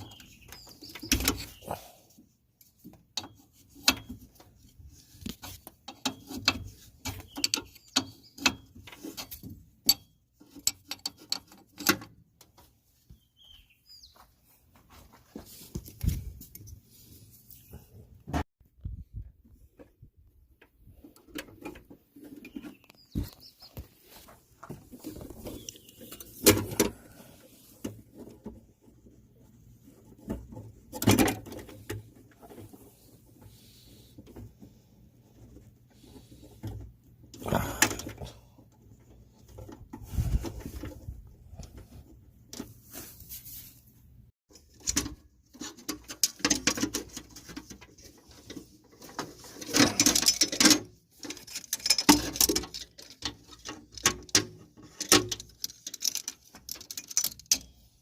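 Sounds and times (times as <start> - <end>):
tools knocking and clicking: 5.7 - 12.5
rustling: 39.2 - 44.8.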